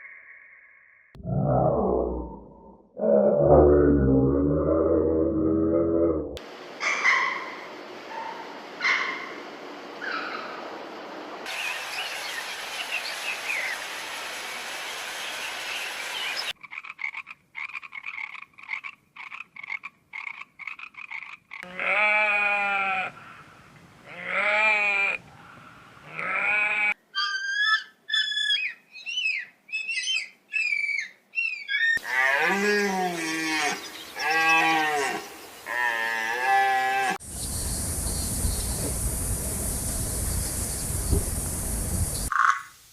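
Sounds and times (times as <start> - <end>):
rapid croaking calls: 16.4 - 22.3, 42.2 - 42.7
long bleats: 21.6 - 23.2, 24.1 - 25.2, 26.0 - 27.0, 32.0 - 37.2
short high squeaky calls: 27.2 - 32.0.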